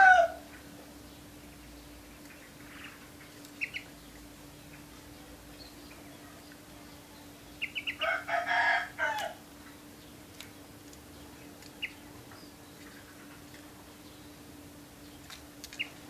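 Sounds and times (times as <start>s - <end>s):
rooster crowing: 0.0s - 0.5s, 7.9s - 9.4s
faint steady hum: 0.0s - 16.0s.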